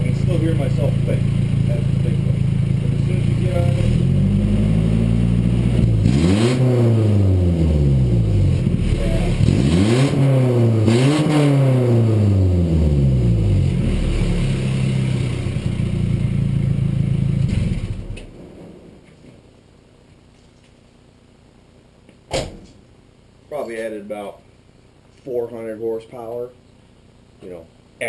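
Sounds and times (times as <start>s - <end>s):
car engine revving and idling: 0.0s - 18.9s.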